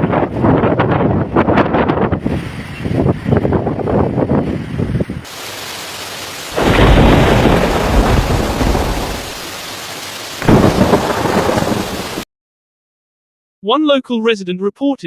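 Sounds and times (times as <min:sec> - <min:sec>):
wind gusts buffeting microphone: 0:00.0 - 0:05.5, 0:06.5 - 0:09.5, 0:10.4 - 0:12.2.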